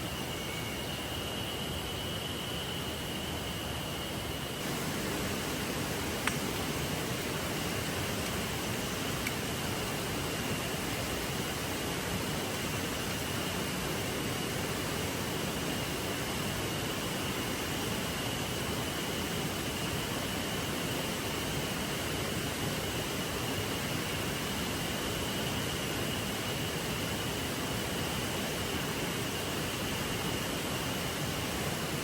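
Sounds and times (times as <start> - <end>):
flowing river: 4.6 - 16.7.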